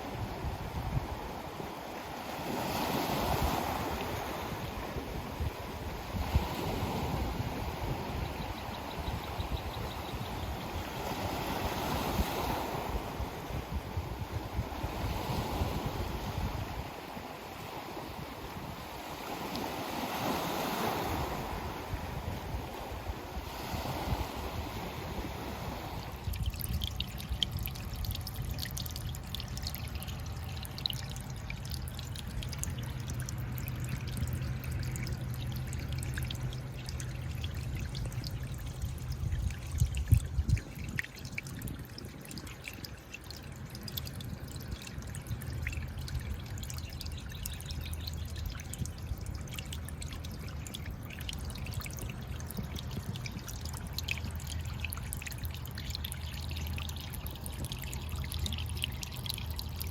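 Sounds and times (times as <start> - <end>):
low rumble of surf: 0.0 - 59.9
small splashes and drips: 25.7 - 59.9.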